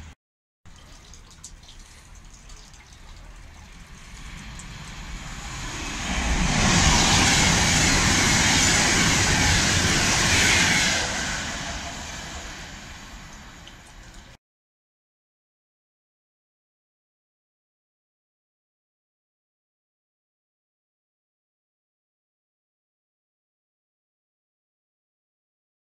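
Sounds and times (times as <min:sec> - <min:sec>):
electric train passing at speed: 0:03.0 - 0:14.4.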